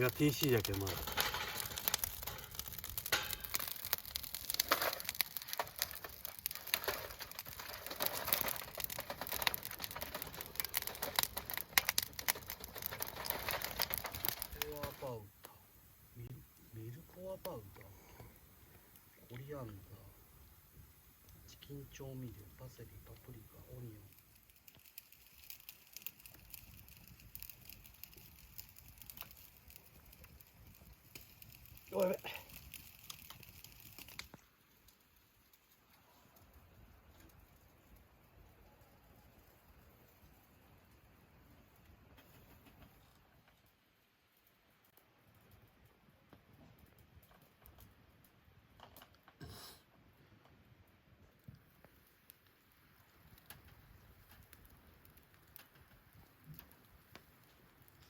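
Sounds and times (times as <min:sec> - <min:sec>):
packaging crinkling: 0:00.0 - 0:15.0
irregular clicks and crackles: 0:00.0 - 0:58.0.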